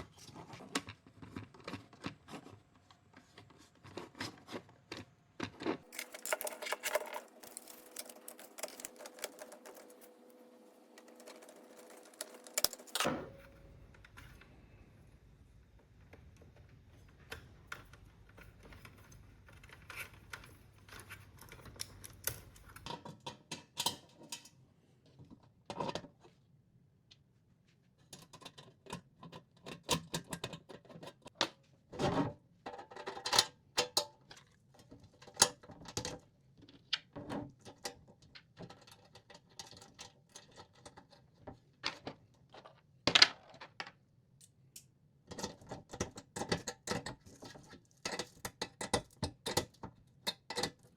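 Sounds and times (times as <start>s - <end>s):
tools and parts clicking: 5.9s - 10.2s.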